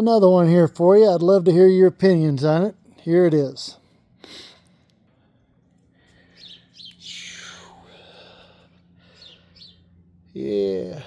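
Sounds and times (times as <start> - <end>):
faint low hum: 0.0 - 11.0
birds chirping: 6.0 - 10.1.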